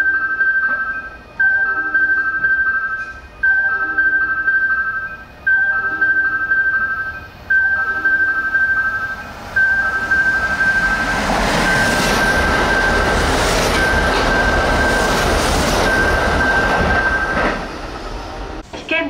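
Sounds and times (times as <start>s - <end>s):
high warning tone: 0.0s - 17.8s
electric train passing: 0.0s - 18.7s.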